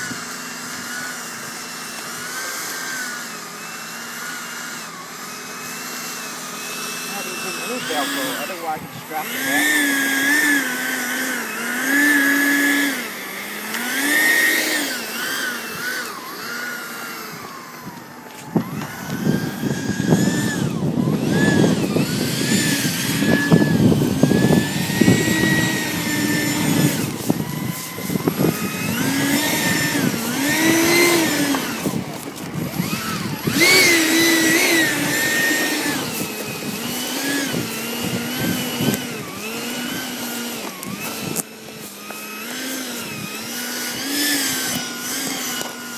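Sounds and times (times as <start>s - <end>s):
electric ducted-fan jet whine: 0.0s - 45.9s
wind buffeting microphone: 17.3s - 41.8s.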